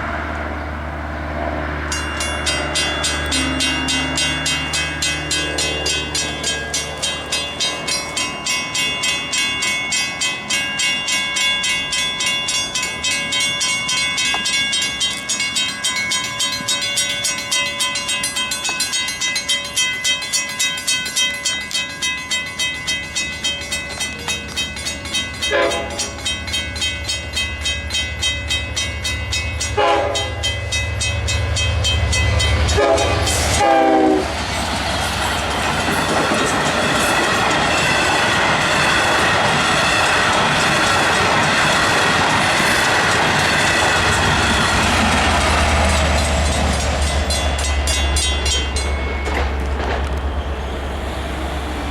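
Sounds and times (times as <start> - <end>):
train horn blasts: 0.0 - 7.7, 25.4 - 26.2, 29.6 - 30.6, 32.0 - 34.6
crossing warning bells: 0.0 - 51.9
train engine rumble: 0.0 - 51.9
train wheels clacking: 1.9 - 51.9.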